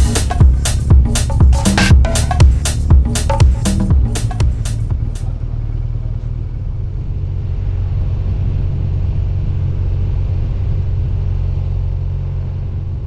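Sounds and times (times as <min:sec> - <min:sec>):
motorcycle engine rumbling: 0:00.0 - 0:07.7
road and wind noise: 0:04.5 - 0:13.0.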